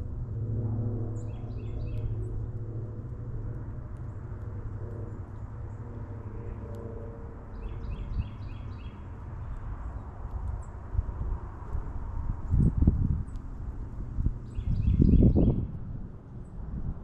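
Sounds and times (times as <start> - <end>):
steady low rumble: 0.0 - 17.0
songbird notes: 14.5 - 15.6.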